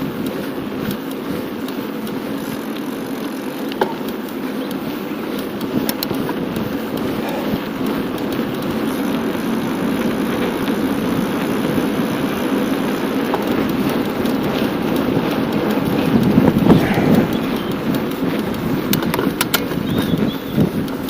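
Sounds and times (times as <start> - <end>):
bicycle tyres rolling on asphalt: 0.0 - 21.0
wind on microphone: 13.4 - 21.0.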